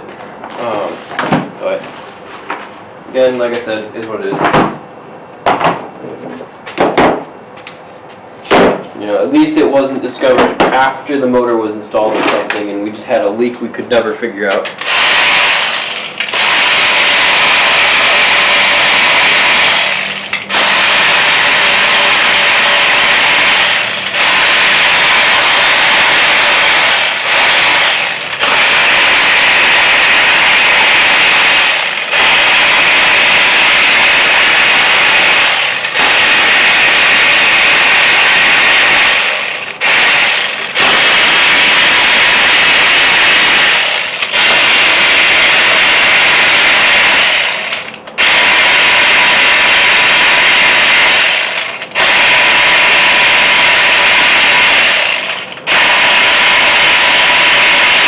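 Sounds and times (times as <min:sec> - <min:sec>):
power tool spinning bolts: 0:14.7 - 0:58.0.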